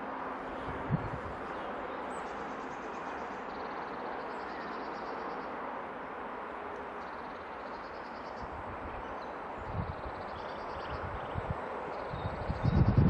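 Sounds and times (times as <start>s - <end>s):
bird singing high trills: 1.5s - 5.6s, 7.0s - 13.0s.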